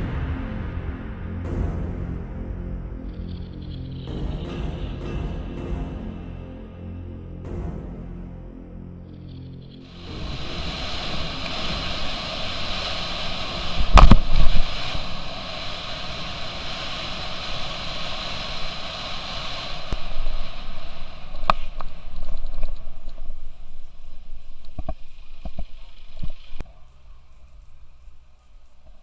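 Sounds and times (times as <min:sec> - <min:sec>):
falling water rushing: 0:09.8 - 0:26.6
loud thump: 0:13.9 - 0:14.7.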